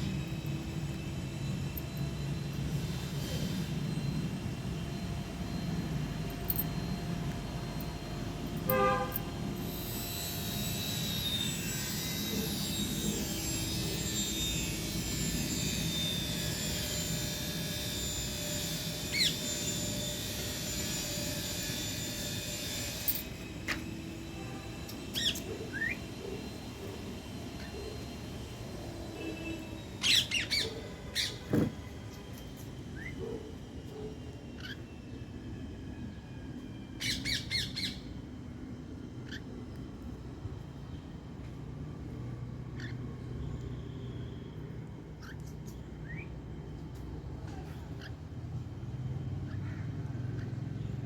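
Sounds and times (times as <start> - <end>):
traffic hum: 0.0 - 17.7
vehicle horn toot: 8.7 - 9.4.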